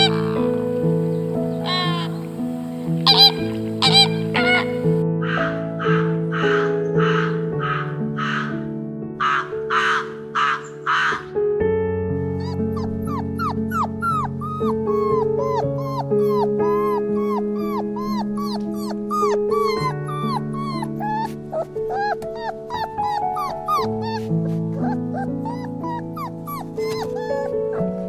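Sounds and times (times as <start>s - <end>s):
puppies whimpering and squeaking: 0.0s - 0.7s, 1.5s - 2.2s, 3.1s - 6.9s, 12.4s - 28.0s
background music: 0.0s - 28.0s.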